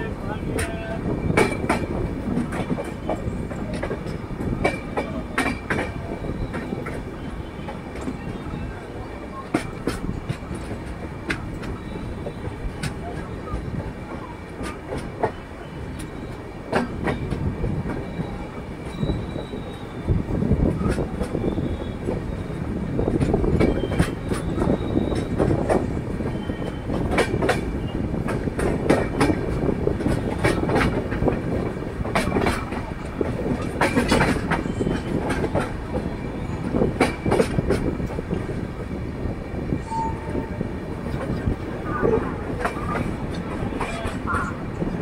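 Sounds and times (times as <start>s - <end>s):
train rumbling on track: 0.0s - 45.0s
wheels clattering over rail joints: 23.0s - 38.5s.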